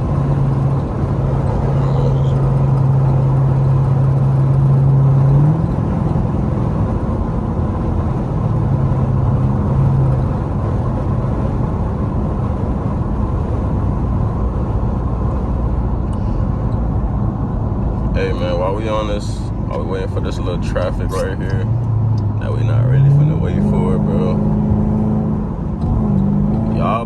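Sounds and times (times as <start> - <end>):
car exhaust droning: 0.0 - 27.0.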